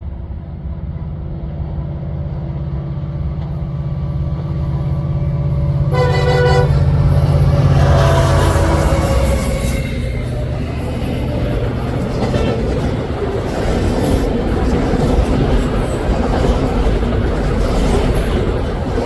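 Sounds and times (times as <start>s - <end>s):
locomotive engine rumble: 0.0s - 19.0s
locomotive air horn blast: 5.9s - 10.0s.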